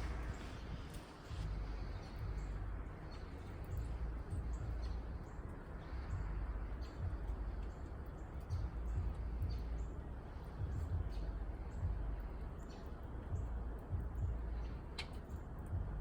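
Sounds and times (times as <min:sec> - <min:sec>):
small birds chirping: 0:00.0 - 0:16.0
steady low rumble: 0:00.0 - 0:16.0.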